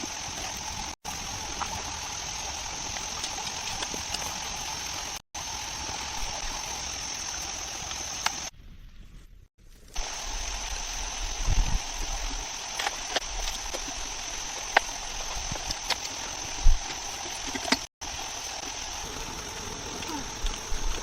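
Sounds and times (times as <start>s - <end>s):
stream water rushing: 10.0s - 21.0s.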